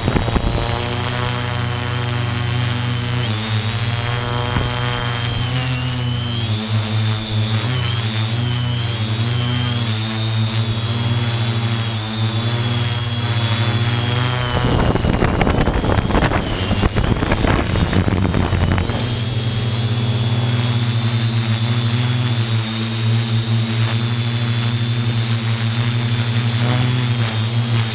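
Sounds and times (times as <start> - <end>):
wind gust on microphone: 0.0 - 1.4, 13.7 - 20.3
drone motors humming and whining: 0.0 - 27.9.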